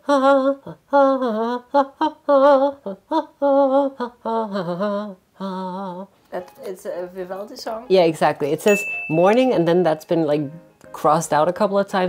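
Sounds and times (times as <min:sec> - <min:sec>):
person humming a melody: 0:00.0 - 0:06.1.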